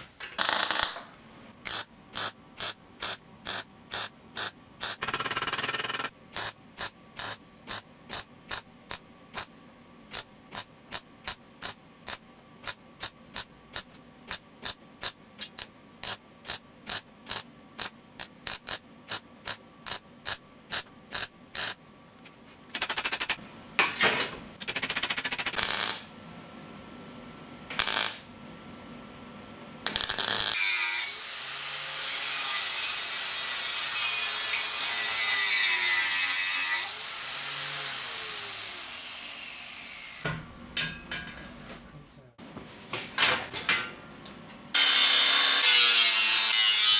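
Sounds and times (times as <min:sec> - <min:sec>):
power tool cutting metal: 0:01.7 - 0:08.6, 0:29.9 - 0:40.2, 0:44.8 - 0:46.9.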